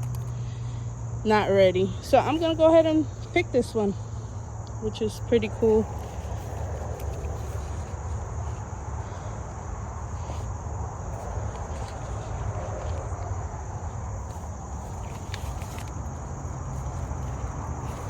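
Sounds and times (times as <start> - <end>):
insect chorus drone: 0.0 - 18.0
rustling of corn leaves: 5.0 - 18.0.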